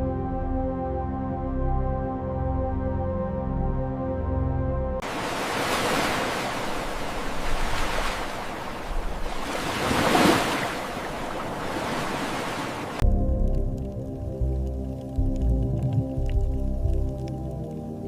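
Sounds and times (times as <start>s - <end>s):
music: 0.0s - 5.0s, 13.0s - 18.0s
ocean waves washing in: 5.0s - 13.0s.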